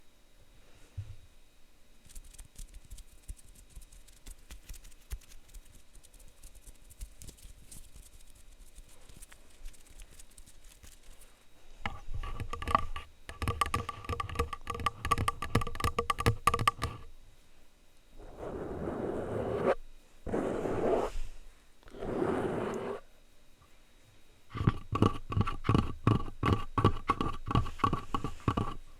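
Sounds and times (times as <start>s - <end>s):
plastic utensils tapping on microphone: 11.9s - 17.1s, 24.5s - 28.8s.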